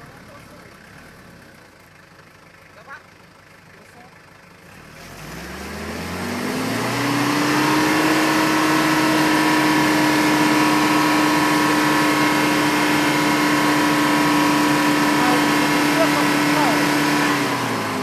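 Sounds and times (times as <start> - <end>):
pickup engine revving: 4.6 - 18.0.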